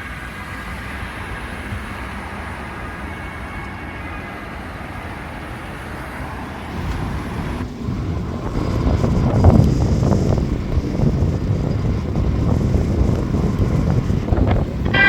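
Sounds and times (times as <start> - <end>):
road traffic hum: 0.0 - 15.0
vehicle rumbling close by: 5.7 - 15.0.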